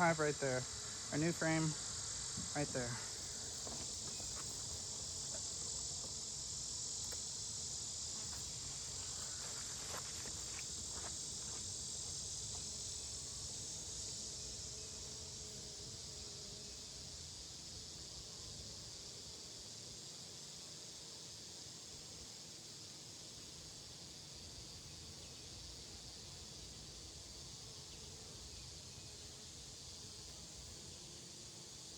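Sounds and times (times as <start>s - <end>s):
bees humming: 0.0s - 17.3s
high-pitched insect chorus: 0.0s - 31.9s.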